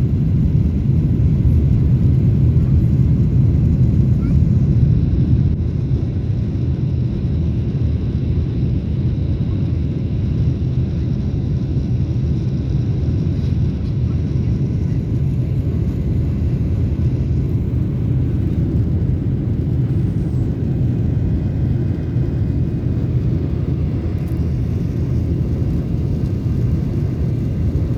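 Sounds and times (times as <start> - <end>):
airliner engines rumbling: 0.0 - 27.9.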